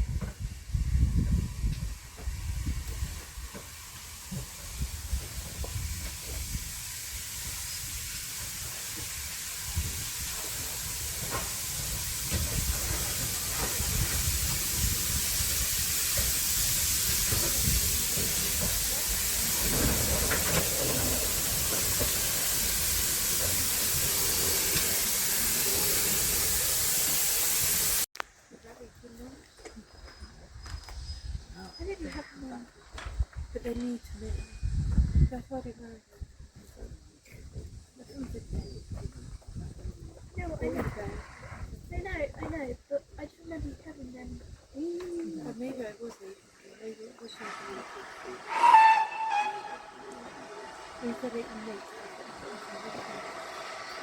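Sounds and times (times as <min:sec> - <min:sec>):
steam locomotive hissing: 0:00.0 - 0:28.1, 0:46.9 - 0:54.0.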